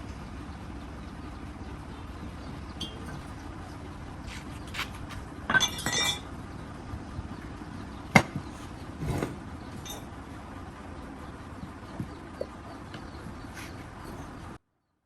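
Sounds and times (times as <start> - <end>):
metal tools clinking: 5.5 - 6.3, 9.0 - 10.1.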